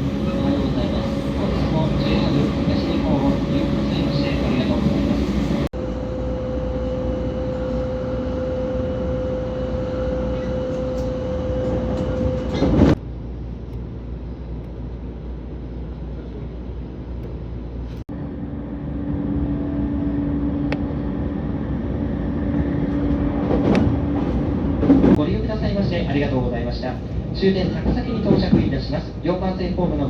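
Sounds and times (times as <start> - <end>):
train wheels rumbling on rails: 7.4 - 13.0, 16.1 - 30.0.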